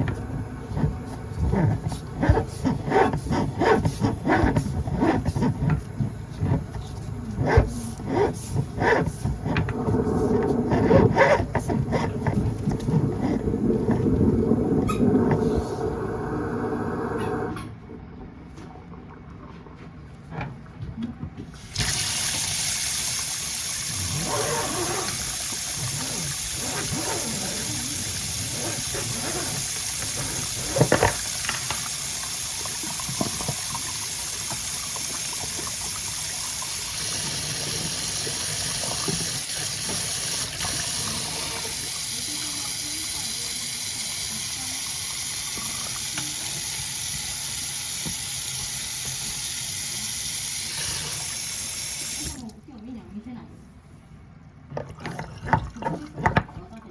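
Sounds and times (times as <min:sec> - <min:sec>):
water rushing: 0:09.7 - 0:17.5.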